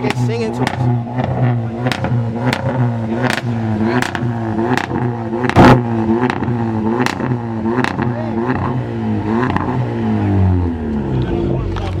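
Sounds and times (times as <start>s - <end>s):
loud exhaust bang: 0.0s - 8.1s
car engine revving: 0.0s - 12.0s
exhaust cracks: 0.0s - 12.0s.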